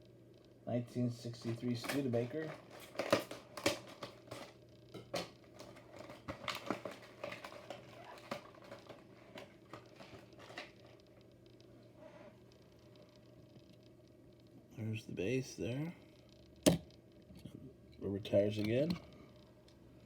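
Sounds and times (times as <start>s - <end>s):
plastic packaging crinkling: 1.2s - 11.2s.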